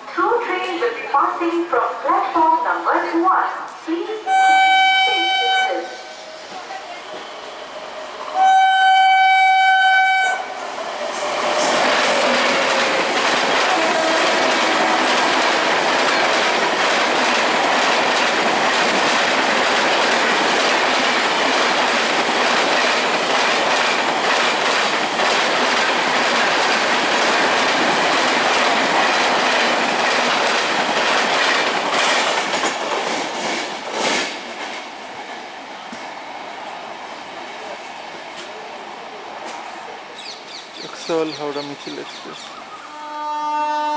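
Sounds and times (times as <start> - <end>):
train horn blast: 4.2 - 6.1, 8.4 - 10.6, 13.6 - 15.6, 42.9 - 43.9
train wheels clattering on rails: 10.6 - 38.6.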